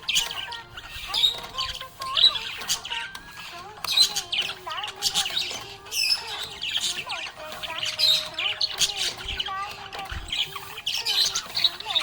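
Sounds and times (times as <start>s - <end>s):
budgerigar chirping and warbling: 0.0s - 12.0s.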